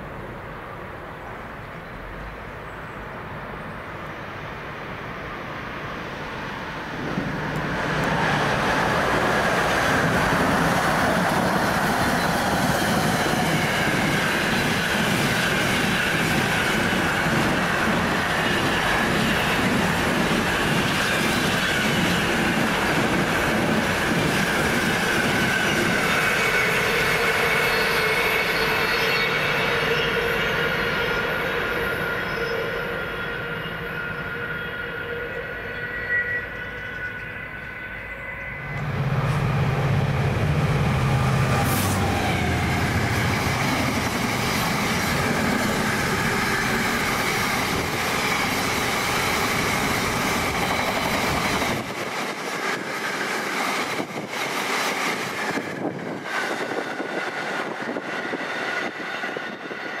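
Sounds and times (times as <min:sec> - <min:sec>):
train rushing and rumbling: 0:00.0 - 1:00.0
train high ringing tones: 0:24.9 - 0:41.6.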